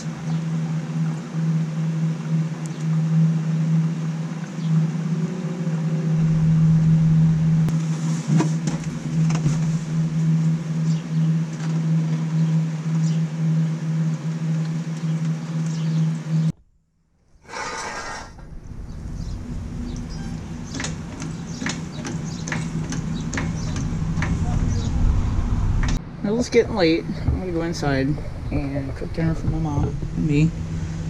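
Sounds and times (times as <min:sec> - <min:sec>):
car engine idling: 0:04.6 - 0:13.6, 0:16.7 - 0:31.0
irregular engine clicks: 0:17.5 - 0:26.0.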